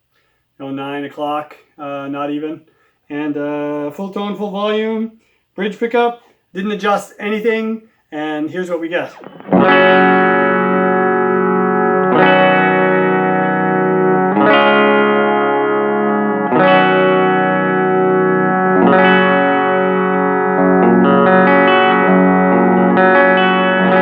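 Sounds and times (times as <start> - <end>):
electric guitar chords strummed: 9.1 - 24.0.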